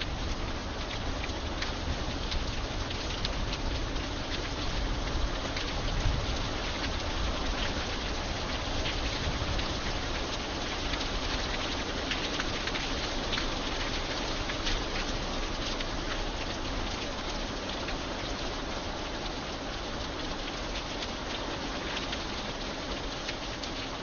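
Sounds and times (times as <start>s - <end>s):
raindrops ticking on hard surface: 0.0s - 24.0s
steady rain hissing: 0.0s - 24.0s.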